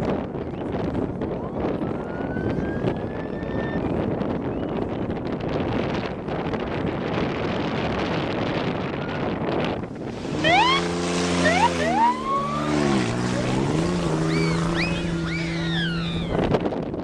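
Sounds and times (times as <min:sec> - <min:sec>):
wind: 0:00.0 - 0:17.0
race vehicle engine revving: 0:09.9 - 0:16.6.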